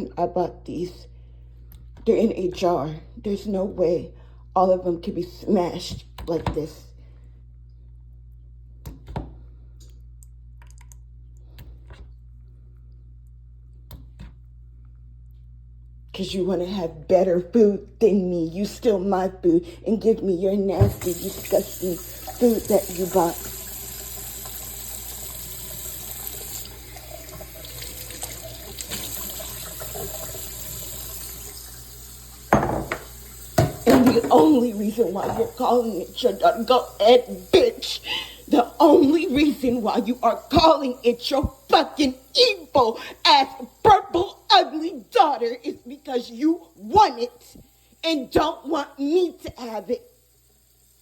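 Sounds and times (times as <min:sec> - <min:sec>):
low electrical hum: 0:00.0 - 0:51.0
tap water running into sink: 0:20.7 - 0:51.0.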